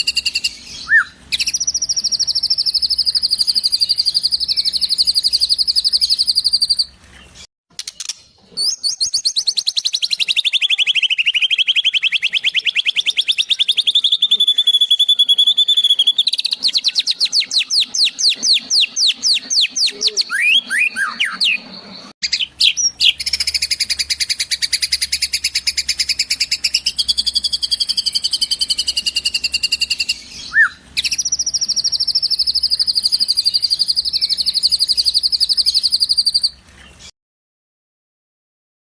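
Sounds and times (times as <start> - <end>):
songbird singing fast trills: 0.0 - 6.9, 8.6 - 36.6.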